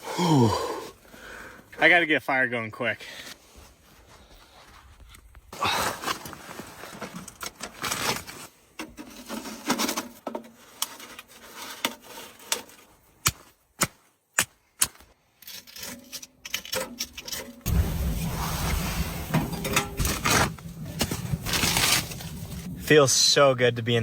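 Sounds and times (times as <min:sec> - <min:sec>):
firewood rubbing and scraping: 0:06.0 - 0:13.0, 0:15.5 - 0:24.0
wood cracking: 0:15.6 - 0:23.0.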